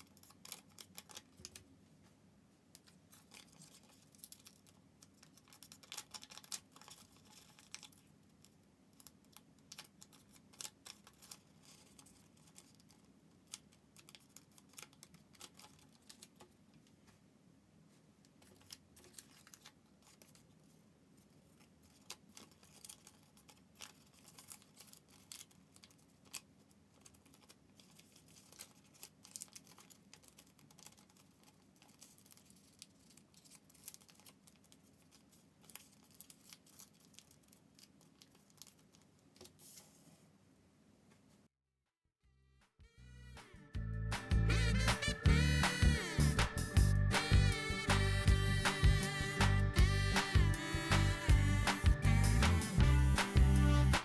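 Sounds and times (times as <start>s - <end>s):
paper folding and rustling: 0.0s - 40.4s.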